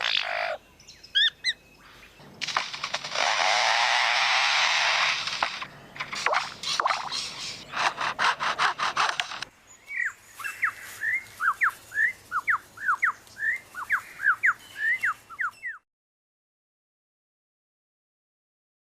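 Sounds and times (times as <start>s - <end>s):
bird mimicking chainsaw rasping: 2.7s - 9.5s
whistled bird notes: 9.7s - 15.8s.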